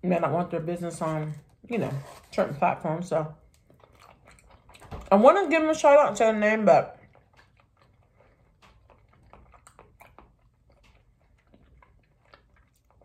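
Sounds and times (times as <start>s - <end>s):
faint chewing: 3.4s - 13.0s
mouth clicks and smacks: 7.0s - 13.0s.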